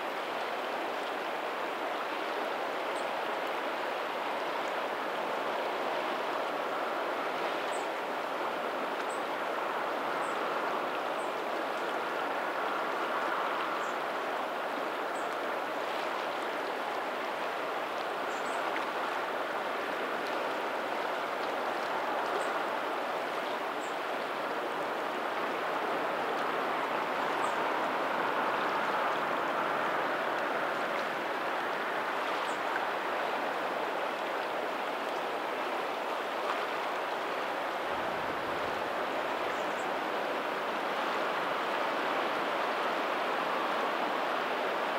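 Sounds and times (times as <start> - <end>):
distant ocean surf: 0.0 - 44.9
water flowing over pebbles: 0.0 - 44.9.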